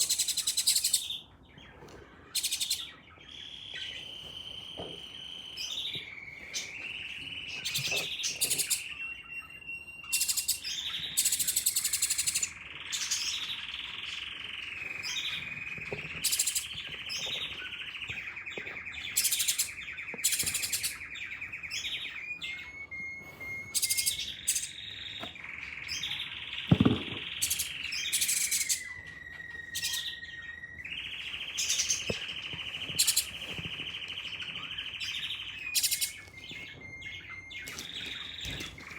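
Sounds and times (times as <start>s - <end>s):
sharp bird chirps: 0.0s - 1.4s, 2.2s - 38.9s
wavering high bird call: 22.5s - 24.8s
thump: 26.7s - 27.3s.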